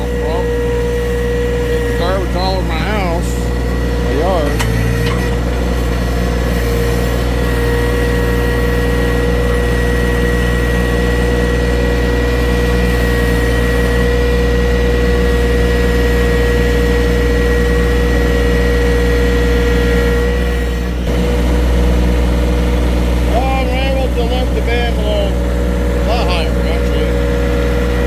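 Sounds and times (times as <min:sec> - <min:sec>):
high whine: 0:00.0 - 0:28.0
tractor engine running: 0:00.0 - 0:28.0.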